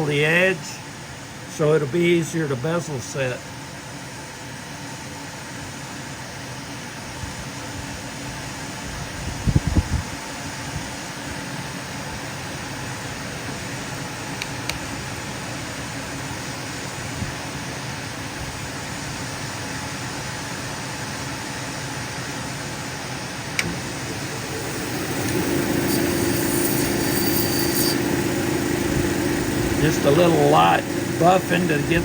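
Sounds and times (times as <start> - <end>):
cabbing machine wheel whirring: 23.5 - 32.0
stone grinding hum: 23.6 - 32.0.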